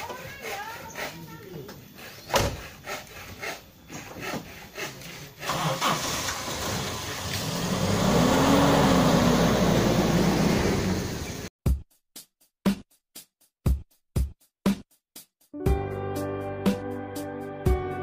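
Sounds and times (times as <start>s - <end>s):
engine cranking on starter: 5.4s - 11.5s
car engine running and revving: 5.8s - 11.5s.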